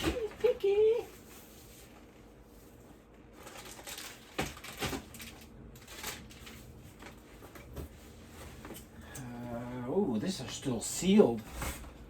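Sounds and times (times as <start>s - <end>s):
plastic packaging rustling: 0.0s - 7.7s.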